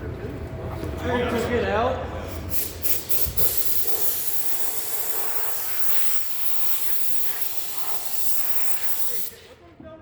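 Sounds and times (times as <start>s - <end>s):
high spraying hiss: 2.5s - 9.6s.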